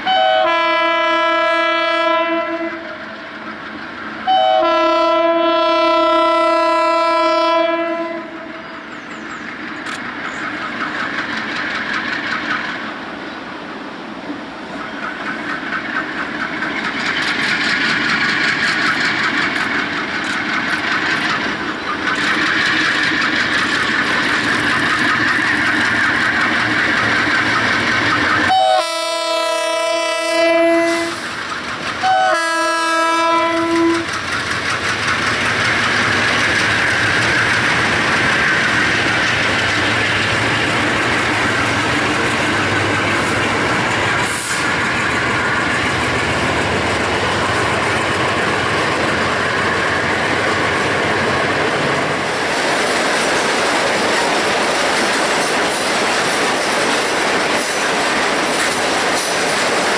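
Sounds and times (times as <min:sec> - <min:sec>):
train air horn blasts: 0:00.0 - 0:03.0, 0:04.2 - 0:08.6, 0:28.4 - 0:31.3, 0:32.0 - 0:34.1
train wheels clicking over rail joints: 0:02.7 - 0:04.6, 0:08.9 - 0:59.9.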